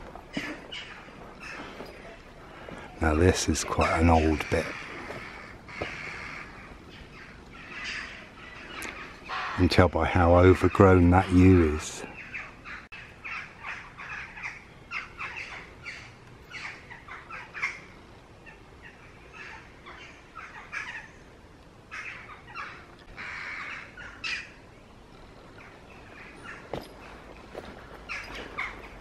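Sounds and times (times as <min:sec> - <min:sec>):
birds calling: 0:00.0 - 0:29.0.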